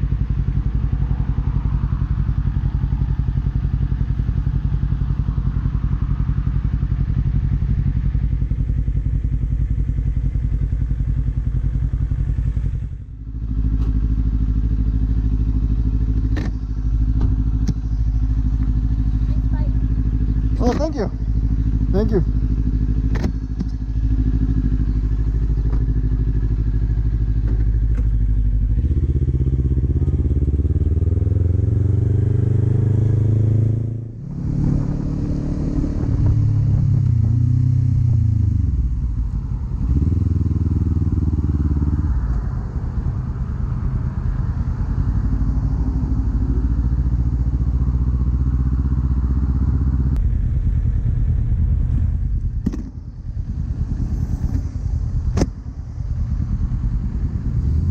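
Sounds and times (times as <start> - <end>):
motorcycle engine accelerating: 0.0 - 57.9
wind rush: 53.2 - 57.9.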